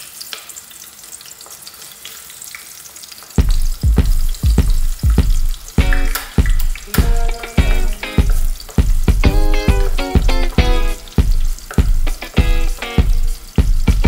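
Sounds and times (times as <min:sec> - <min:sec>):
garlic sizzling in hot oil: 0:00.0 - 0:14.0
music with heavy bass beat: 0:03.4 - 0:14.0.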